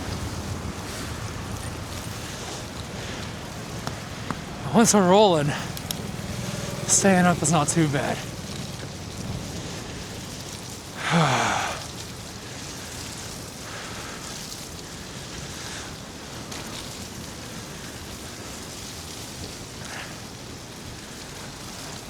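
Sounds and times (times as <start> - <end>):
bicycle tyres rolling through slush: 0.0 - 22.0
short falling groan: 11.0 - 11.9.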